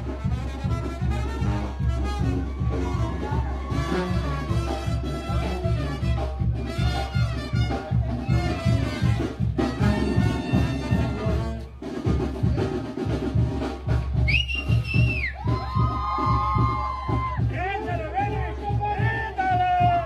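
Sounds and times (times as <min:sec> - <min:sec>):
brass band playing: 0:00.0 - 0:15.7.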